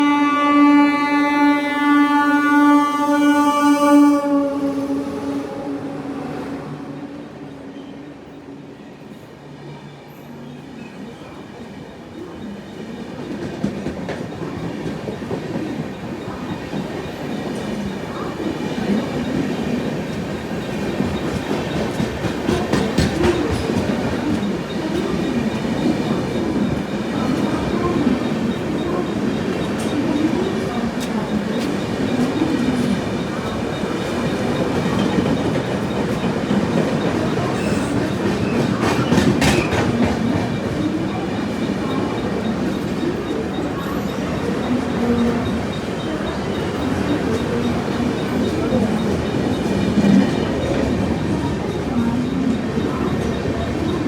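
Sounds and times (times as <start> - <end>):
train horn blast: 0.0 - 8.7
train rumbling past: 0.0 - 54.0.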